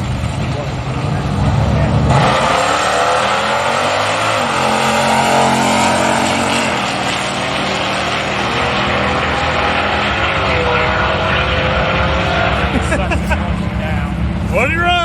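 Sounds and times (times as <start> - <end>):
drag racing engines accelerating: 0.0 - 15.0.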